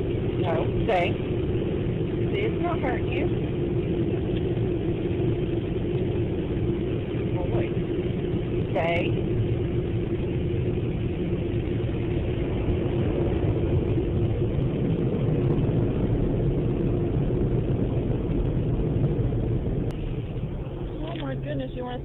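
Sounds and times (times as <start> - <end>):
car wash dryer blowers: 0.0 - 3.4, 10.1 - 22.0.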